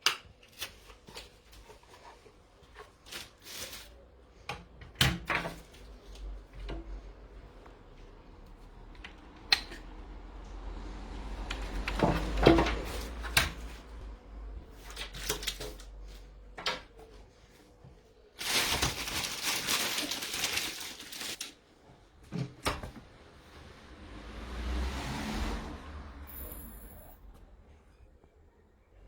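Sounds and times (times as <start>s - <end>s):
rustling: 18.3s - 21.6s.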